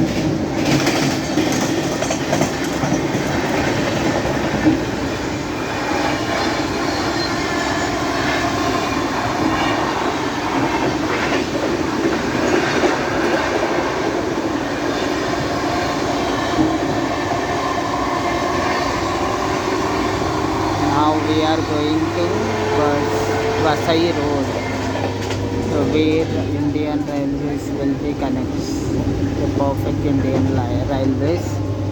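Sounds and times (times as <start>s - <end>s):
wheels clicking over rail joints: 0.0s - 5.0s
train running noise: 0.0s - 31.9s.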